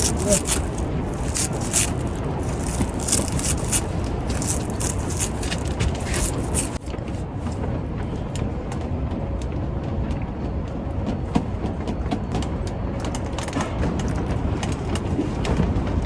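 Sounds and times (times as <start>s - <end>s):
sharp clicks and crackles: 0.0s - 6.9s.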